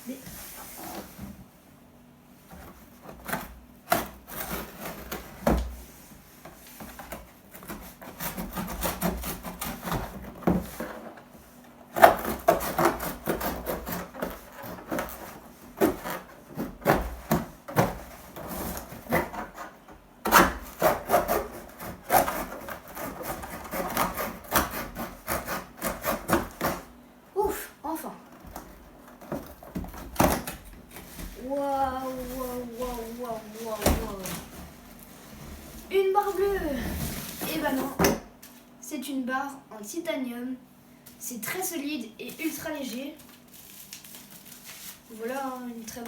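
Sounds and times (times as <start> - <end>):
cardboard being cut and torn: 3.1 - 5.7, 7.0 - 11.0, 11.9 - 26.9, 28.5 - 34.8.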